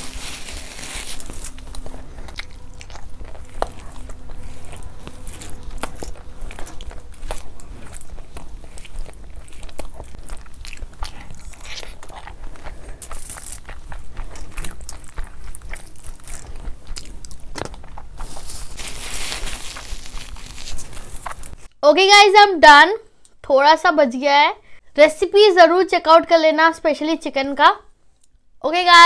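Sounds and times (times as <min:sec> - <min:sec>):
paper tissue rustling: 0:00.0 - 0:02.4, 0:18.2 - 0:21.7
chewing and mouth sounds: 0:01.1 - 0:21.6.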